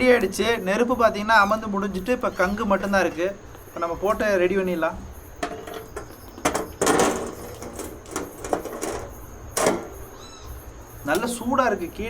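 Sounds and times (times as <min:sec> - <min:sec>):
metal grill clatter: 0:03.7 - 0:10.2
metal grill clinking and knocking: 0:03.7 - 0:10.2.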